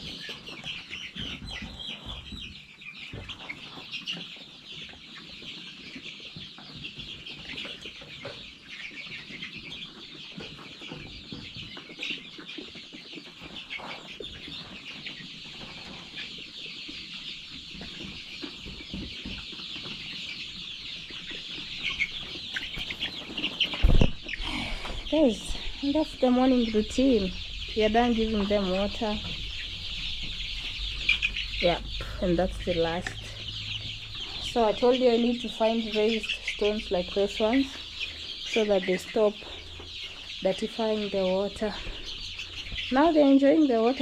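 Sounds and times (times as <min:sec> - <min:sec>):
chicks peeping: 0:00.0 - 0:44.0.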